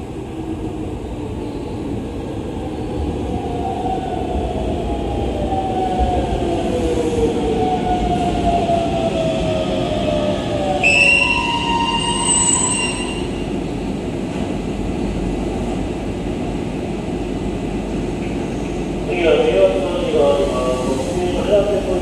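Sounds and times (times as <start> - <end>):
train rumbling: 0.0 - 22.0
train brakes squealing: 10.8 - 13.4.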